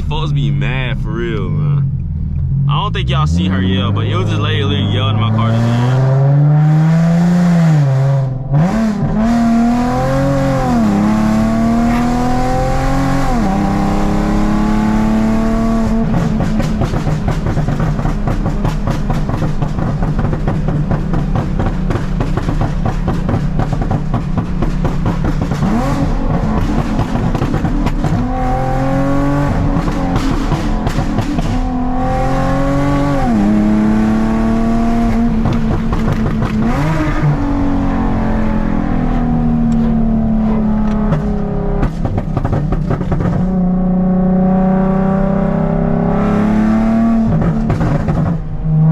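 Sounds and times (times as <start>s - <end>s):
car engine accelerating through gears: 0.0s - 48.9s
exhaust crackles and pops: 15.8s - 28.3s, 29.3s - 31.8s, 35.0s - 37.4s, 39.7s - 43.6s.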